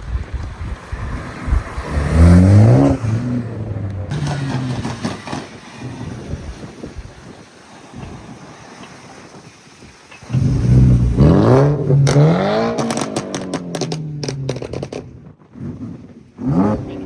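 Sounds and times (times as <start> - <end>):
car engine accelerating: 0.2 - 6.8, 10.3 - 17.0.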